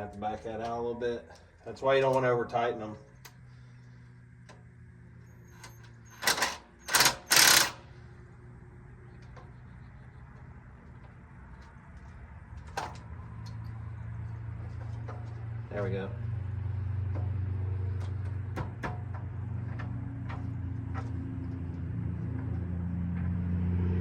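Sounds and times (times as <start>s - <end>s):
impact driver bursts: 5.4s - 8.0s.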